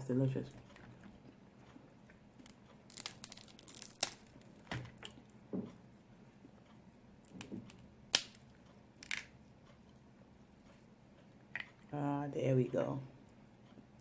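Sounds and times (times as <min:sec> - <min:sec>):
crab shells cracking: 0:02.4 - 0:05.2, 0:07.3 - 0:09.4.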